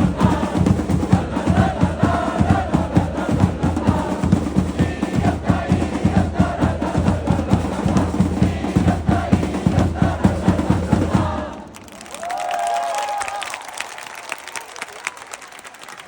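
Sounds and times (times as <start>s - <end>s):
drums beating fast rhythm: 0.0s - 11.6s
crowd chanting: 0.0s - 11.8s.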